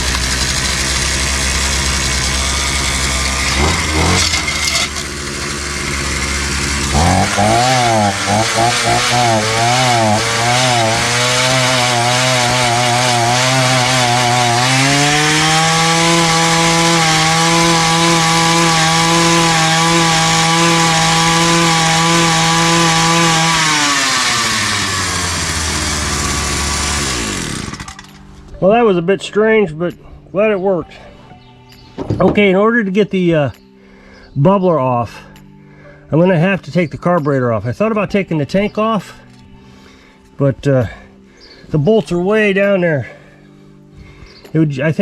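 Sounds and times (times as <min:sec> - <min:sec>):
two-stroke tiller engine running: 0:00.0 - 0:28.2.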